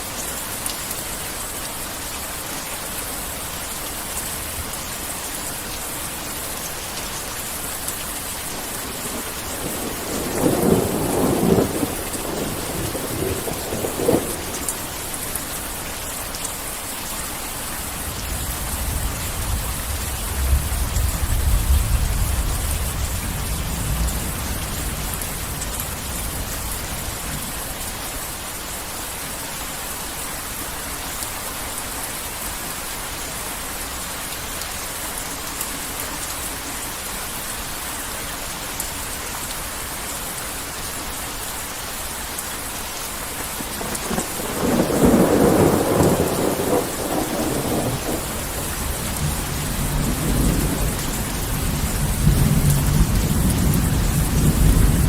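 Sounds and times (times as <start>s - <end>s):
heavy rain falling: 0.0s - 55.0s
thunder rumbling: 8.8s - 15.1s, 43.6s - 55.0s.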